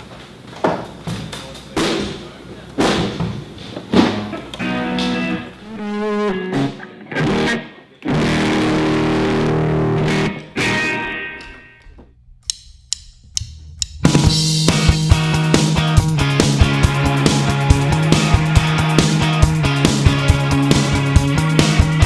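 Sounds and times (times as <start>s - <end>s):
rock band playing: 4.1s - 11.8s, 14.0s - 22.0s
electric guitar with effects: 4.2s - 11.9s, 14.3s - 22.0s.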